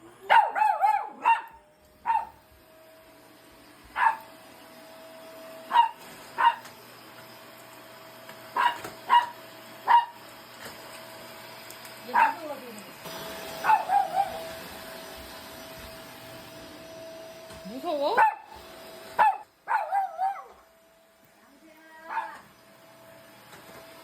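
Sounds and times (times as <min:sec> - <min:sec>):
vacuum cleaner humming: 0:00.0 - 0:24.0
dog barking: 0:00.3 - 0:02.4, 0:04.0 - 0:04.3, 0:05.7 - 0:06.7, 0:08.6 - 0:10.2, 0:12.1 - 0:12.5, 0:13.6 - 0:14.5, 0:18.2 - 0:18.6, 0:19.2 - 0:20.6, 0:22.1 - 0:22.4.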